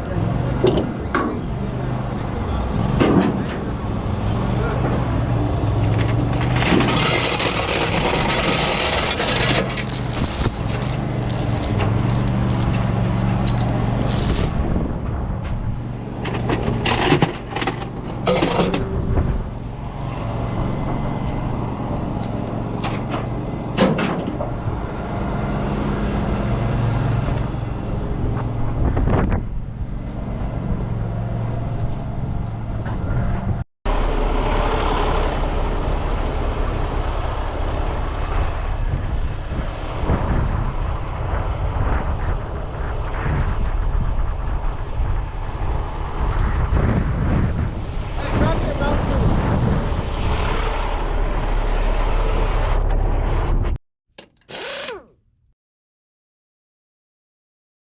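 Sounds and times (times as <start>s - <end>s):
sharp metallic clanks: 0.6s - 1.4s
truck engine running: 33.9s - 41.6s.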